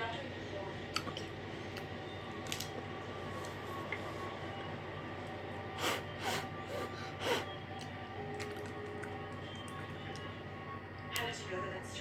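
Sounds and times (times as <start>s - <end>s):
steady low hum: 0.0s - 12.0s
breathy nose sniffs: 5.7s - 7.6s.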